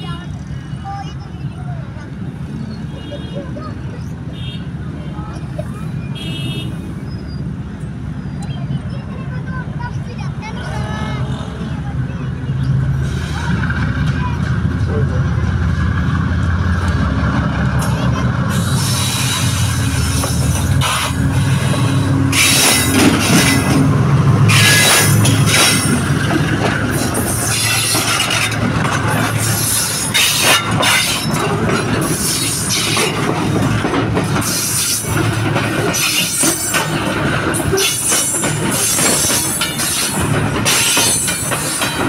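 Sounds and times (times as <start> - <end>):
locomotive engine drone: 0.0 - 42.0
high wheel squealing: 5.2 - 9.8, 17.8 - 42.0
steel wheels rolling on rails: 7.0 - 42.0.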